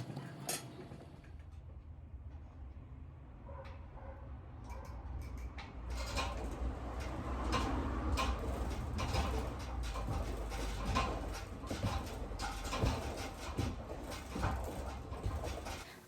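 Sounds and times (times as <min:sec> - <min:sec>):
washing machine tank knocking: 0:06.1 - 0:15.9.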